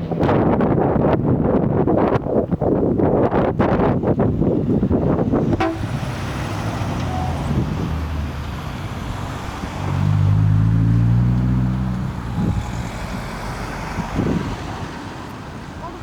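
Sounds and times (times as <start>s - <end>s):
car engine rumble: 2.2s - 16.0s.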